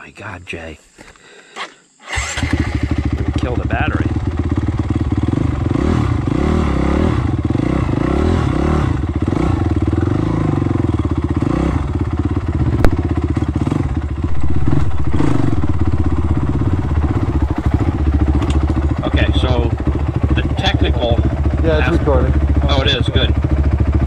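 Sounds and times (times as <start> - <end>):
dirt bike engine revving: 2.1 - 24.0
sharp click: 18.4 - 18.7.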